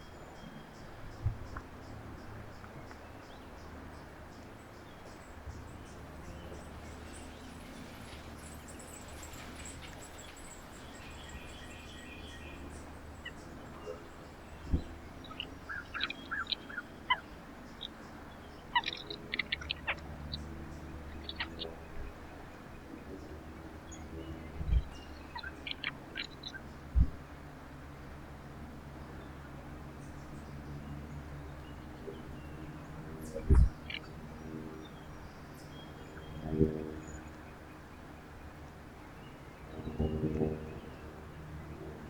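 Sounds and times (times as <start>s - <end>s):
small songbirds chirping: 0.0s - 27.2s
steady low rumble: 33.3s - 34.3s.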